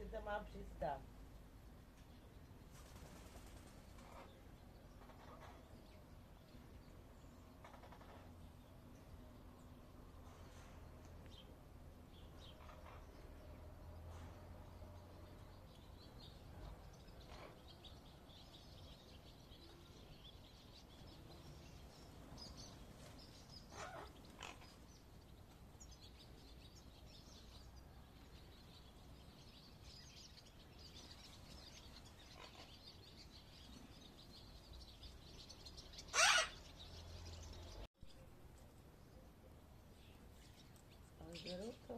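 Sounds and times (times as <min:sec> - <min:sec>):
parakeet calling: 0:23.7 - 0:24.8, 0:36.0 - 0:36.8.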